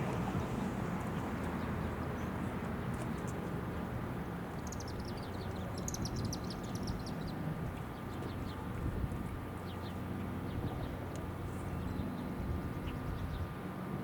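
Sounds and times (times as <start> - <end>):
bird chirping: 4.6 - 8.6.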